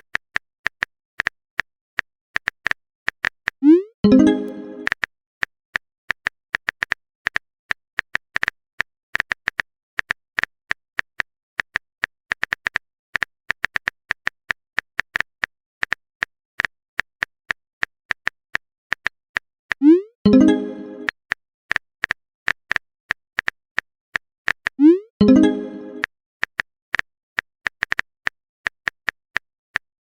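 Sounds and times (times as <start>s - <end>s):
rising message-sent tone: 3.6s - 4.9s, 19.8s - 21.1s.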